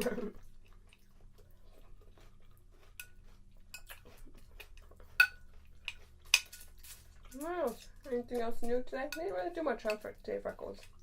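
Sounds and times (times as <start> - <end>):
chewing cereal: 0.0 - 11.0
spoon clicking in cereal bowl: 5.2 - 7.0.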